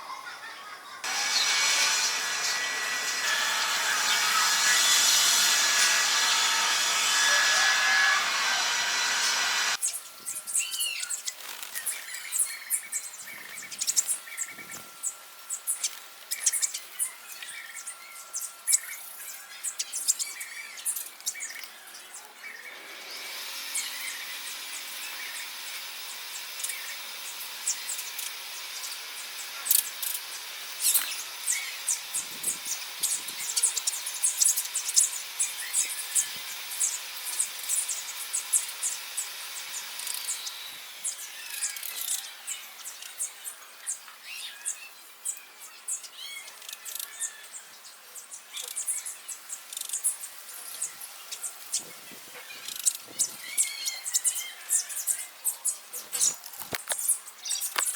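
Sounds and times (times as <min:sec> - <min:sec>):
small birds chirping: 0:23.8 - 0:57.9.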